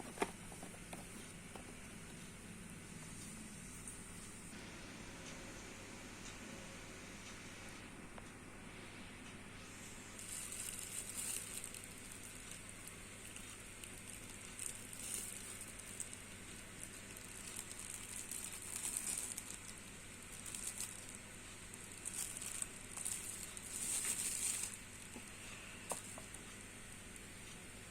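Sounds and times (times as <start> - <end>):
packaging rustling and crinkling: 10.2 - 25.2.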